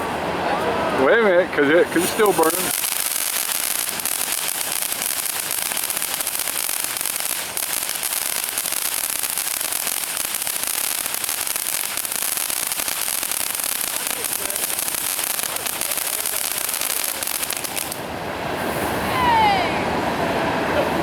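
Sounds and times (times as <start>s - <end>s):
firework crackling fizz: 1.8s - 18.1s.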